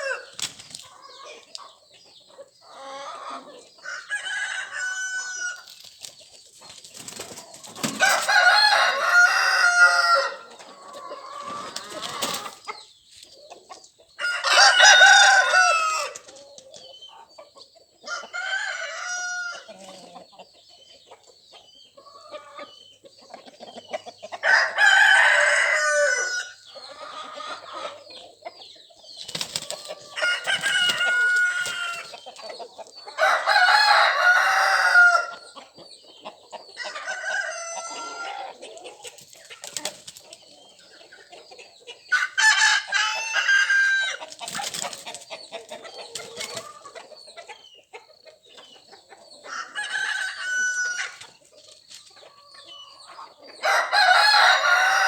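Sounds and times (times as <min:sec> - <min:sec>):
roosters crowing: 0:00.0 - 0:01.4, 0:02.6 - 0:05.8, 0:07.0 - 0:12.8, 0:14.1 - 0:16.3, 0:18.0 - 0:20.2, 0:24.4 - 0:28.2, 0:29.3 - 0:35.6, 0:36.6 - 0:39.0, 0:42.0 - 0:47.0, 0:49.4 - 0:51.4, 0:52.2 - 0:55.0
hens clucking: 0:00.0 - 0:55.0.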